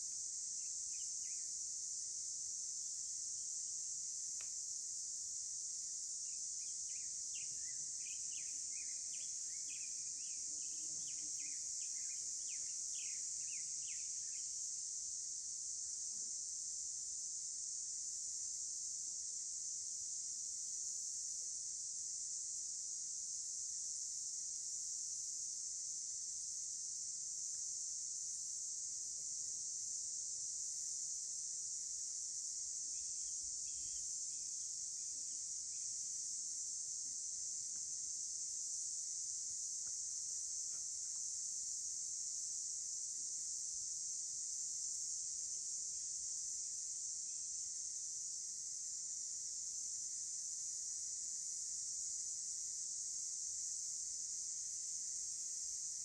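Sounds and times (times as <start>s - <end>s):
insects droning: 0.0s - 56.0s
faint bird chirps: 6.6s - 14.4s, 33.3s - 34.1s.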